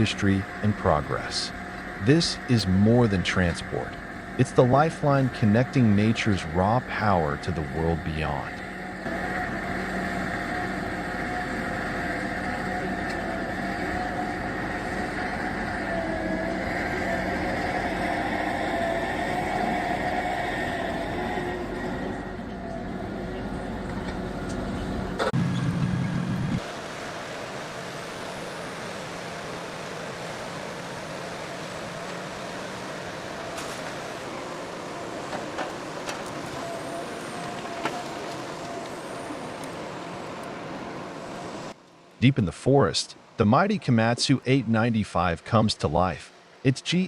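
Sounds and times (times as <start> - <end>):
truck engine running: 0.0 - 26.6
wavering whine: 0.0 - 41.8
faint constant hum: 0.0 - 47.0.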